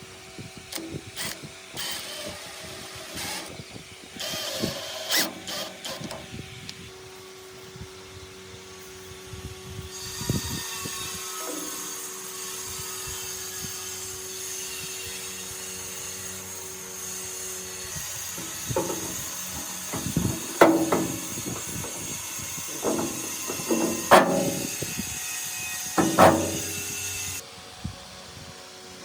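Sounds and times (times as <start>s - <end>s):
ringing scraping strokes: 16.6s - 27.4s.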